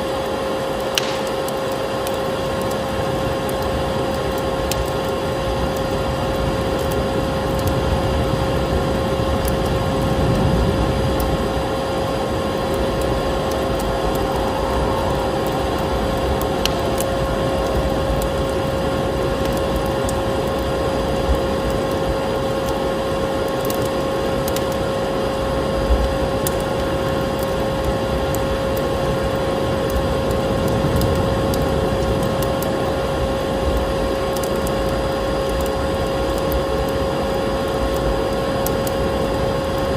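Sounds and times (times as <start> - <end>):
wood fire crackling and popping: 0.0 - 39.9
vacuum cleaner humming: 12.0 - 20.9.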